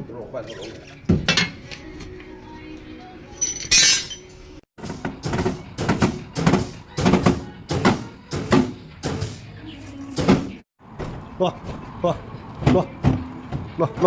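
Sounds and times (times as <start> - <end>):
metal tools clinking and knocking: 1.3 - 1.6, 3.4 - 4.3.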